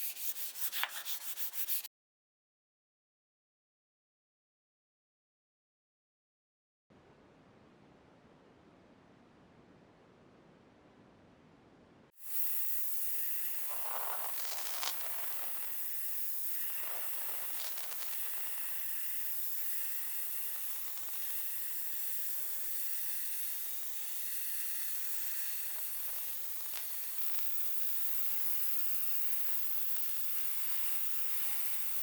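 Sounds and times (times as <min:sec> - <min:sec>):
spray paint hissing: 0:00.0 - 0:01.9, 0:12.2 - 0:32.0.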